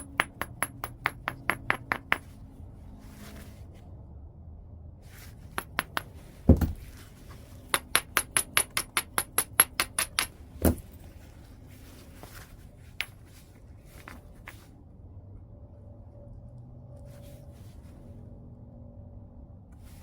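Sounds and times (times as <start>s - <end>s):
heavy strike on stone: 0.0s - 2.3s, 5.6s - 7.0s.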